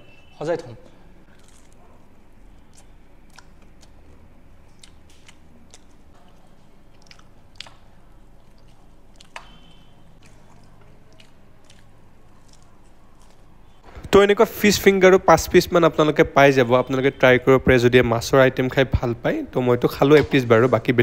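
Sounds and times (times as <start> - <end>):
person chewing: 1.2 - 13.8
crisp crust crunching: 1.3 - 9.4, 10.2 - 13.8.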